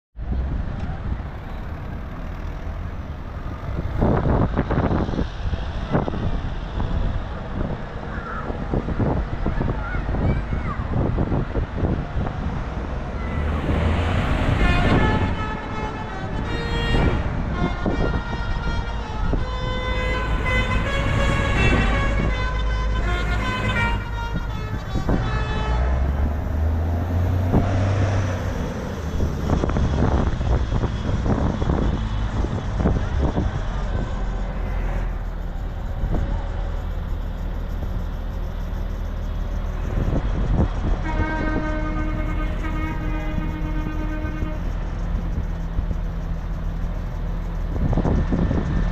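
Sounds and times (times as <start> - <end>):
tractor diesel engines: 0.2 - 48.9
horns tooting: 12.9 - 31.4, 32.4 - 46.0.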